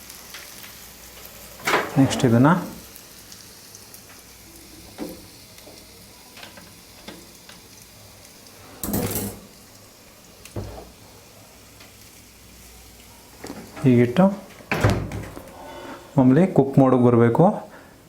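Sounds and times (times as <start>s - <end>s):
faint steady hiss: 0.0s - 18.0s
food sizzling: 0.0s - 18.0s
skewers clinking on grill: 8.8s - 9.6s.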